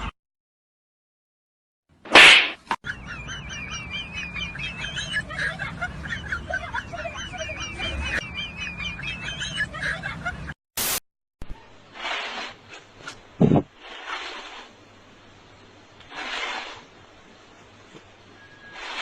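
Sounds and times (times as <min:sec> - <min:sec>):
bird chirping: 0:02.9 - 0:05.3, 0:06.8 - 0:09.6
short burst of noise: 0:10.8 - 0:11.0.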